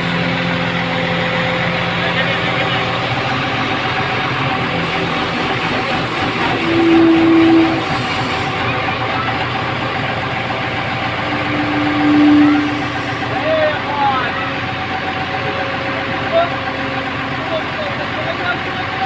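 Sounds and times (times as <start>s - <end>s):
diesel engine running: 0.0s - 19.0s
steady tones: 2.9s - 15.8s.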